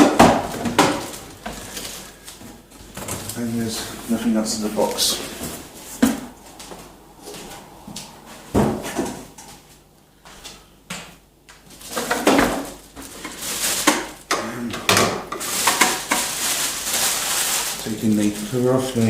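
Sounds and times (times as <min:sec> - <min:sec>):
packaging rustling and knocking: 0:11.6 - 0:18.4.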